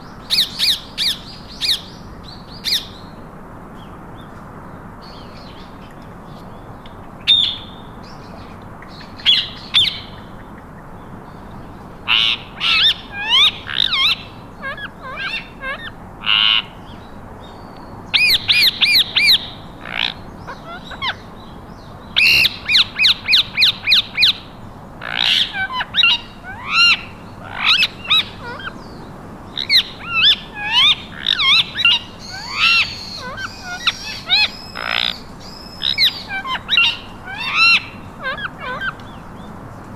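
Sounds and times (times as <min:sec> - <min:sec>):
parakeets squawking and chirping: 0:12.1 - 0:16.7, 0:18.2 - 0:21.5, 0:22.2 - 0:24.4, 0:25.0 - 0:39.2.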